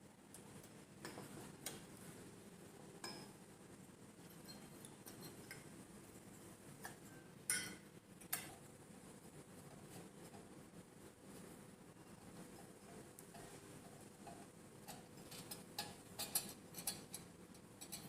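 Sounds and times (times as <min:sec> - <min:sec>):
clinks of small hard parts: 0:07.5 - 0:08.5.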